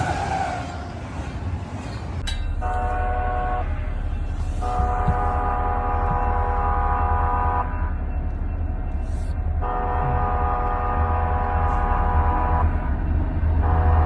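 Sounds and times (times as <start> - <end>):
steady low rumble: 1.4 - 14.0
train horn blasts: 2.6 - 8.2, 8.8 - 12.9, 13.5 - 14.0.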